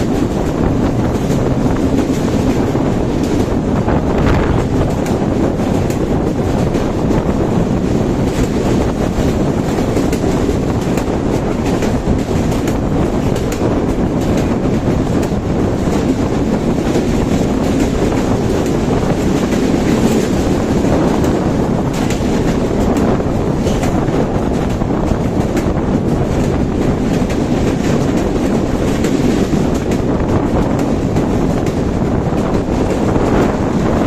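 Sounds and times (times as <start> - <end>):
train rumbling on rails: 0.0 - 34.0.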